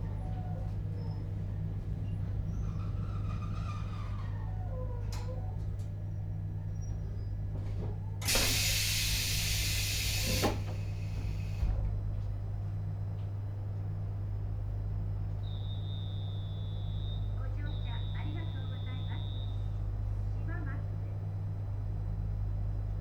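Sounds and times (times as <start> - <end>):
train car electrical hum: 0.0 - 23.0
compressed air hiss: 8.2 - 11.7.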